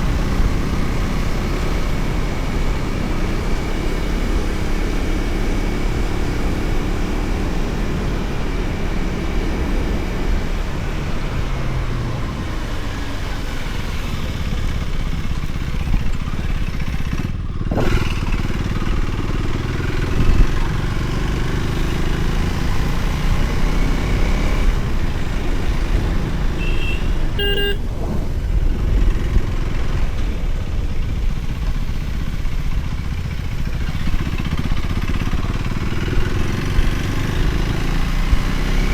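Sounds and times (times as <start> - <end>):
motorcycle engine rumble: 0.0 - 38.9
wind: 0.0 - 38.9
horn toot: 26.5 - 28.0.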